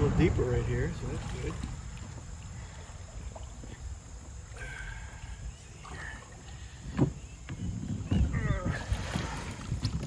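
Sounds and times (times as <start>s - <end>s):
faint water and paddle ticks: 0.0s - 10.0s
wind rumble on microphone: 6.7s - 10.0s.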